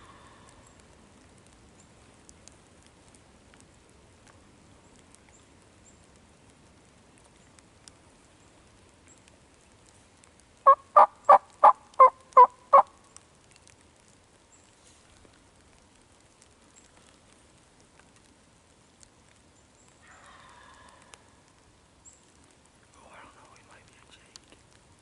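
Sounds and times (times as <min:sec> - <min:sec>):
turkey yelps: 0:10.6 - 0:12.9, 0:20.0 - 0:21.2.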